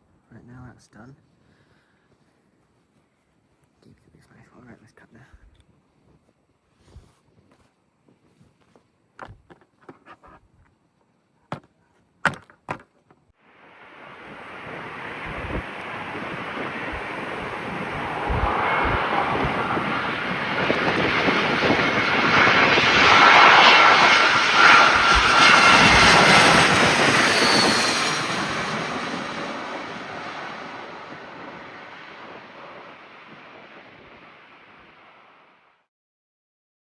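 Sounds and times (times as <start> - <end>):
jet airliner engine roar: 13.4 - 35.7
jet engine whine: 13.4 - 35.9.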